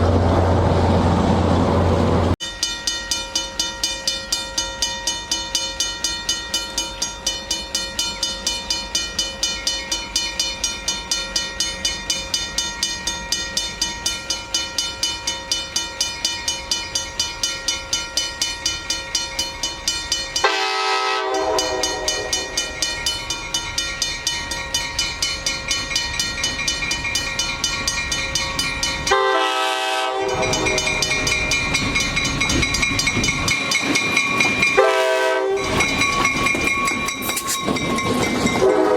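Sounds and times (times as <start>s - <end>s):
train locomotive pulsing: 0.0s - 38.9s
horn-like tones: 20.4s - 22.7s, 29.1s - 31.0s, 34.8s - 35.6s.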